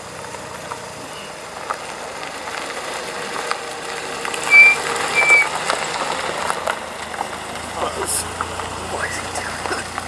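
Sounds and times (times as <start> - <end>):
cars moving slowly past: 0.0 - 10.0
short high-pitched beeps: 4.5 - 5.5.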